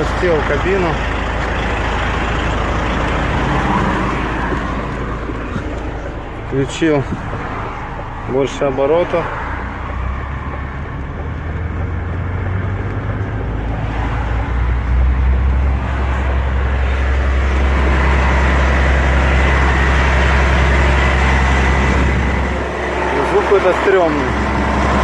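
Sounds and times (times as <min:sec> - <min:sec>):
man talking: 0:00.0 - 0:01.1, 0:06.4 - 0:07.3, 0:08.2 - 0:09.4, 0:23.1 - 0:24.4
diesel truck engine revving: 0:00.0 - 0:25.0.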